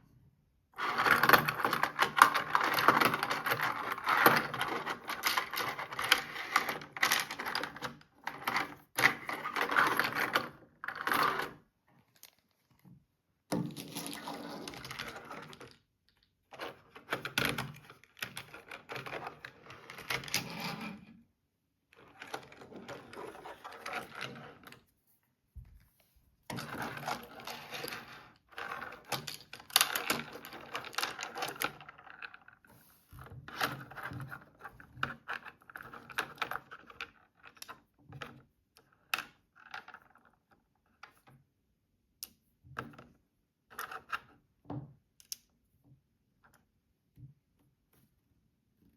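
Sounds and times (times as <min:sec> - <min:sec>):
plastic toys clicking and clattering: 0:00.8 - 0:11.6, 0:26.5 - 0:32.6.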